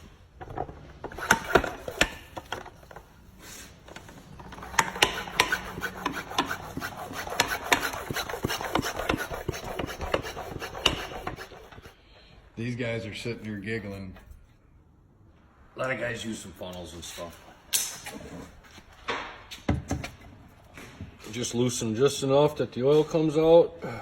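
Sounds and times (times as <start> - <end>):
hand tools clicking and scraping: 0.0 - 12.0.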